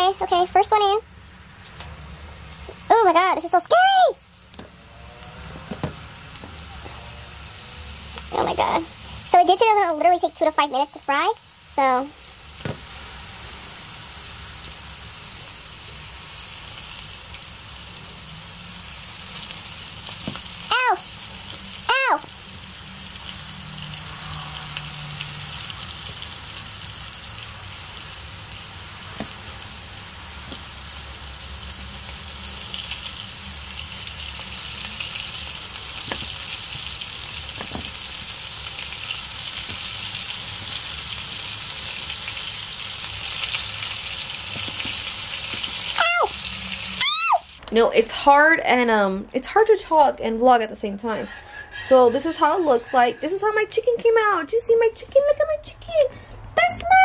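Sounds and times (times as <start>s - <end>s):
chicken sizzling in hot oil: 1.9s - 47.6s
person yelping: 20.7s - 21.1s, 46.0s - 46.4s, 47.0s - 47.5s.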